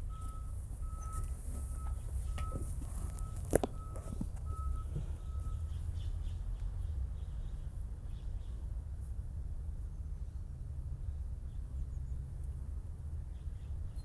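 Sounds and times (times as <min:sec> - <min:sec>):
short electronic beeps: 0:00.0 - 0:05.7
steady low rumble: 0:00.0 - 0:11.9.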